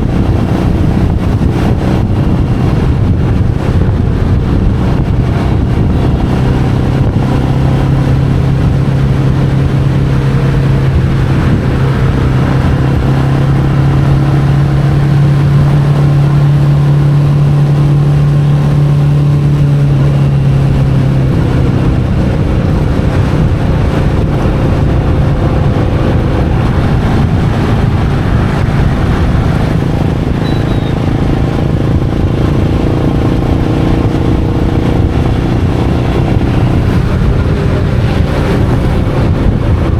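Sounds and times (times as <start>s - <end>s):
motorcycle engine running: 0.0s - 39.9s
road noise rumble: 0.0s - 39.9s.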